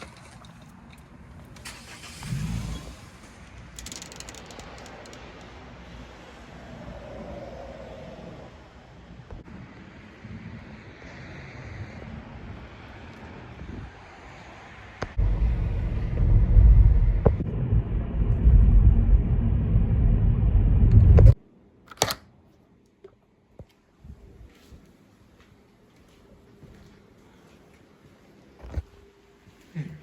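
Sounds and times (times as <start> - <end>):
car road and engine rumble: 0.0 - 21.4.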